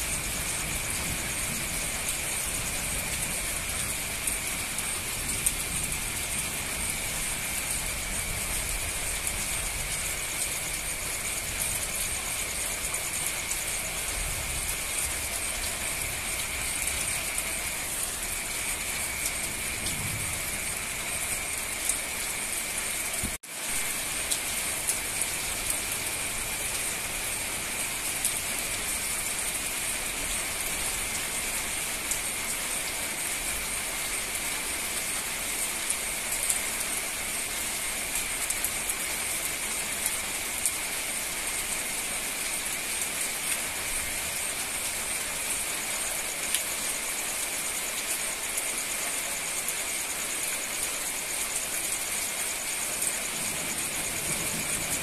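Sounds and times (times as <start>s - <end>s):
heavy rain on pavement: 0.0s - 55.0s.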